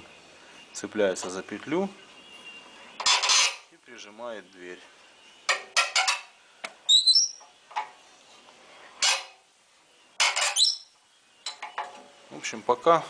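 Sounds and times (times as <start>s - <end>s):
bird chirping: 6.8s - 8.4s, 9.7s - 12.0s.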